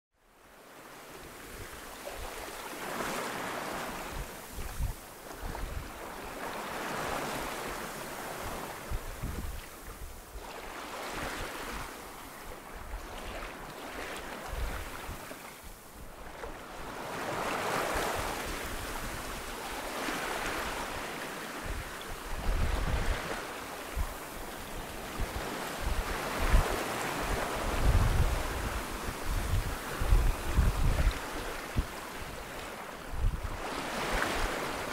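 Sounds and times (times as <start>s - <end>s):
wind over water: 0.2s - 34.9s
sea waves washing: 1.3s - 34.9s
wind buffeting microphone: 3.8s - 6.1s, 6.8s - 11.9s, 16.0s - 34.9s.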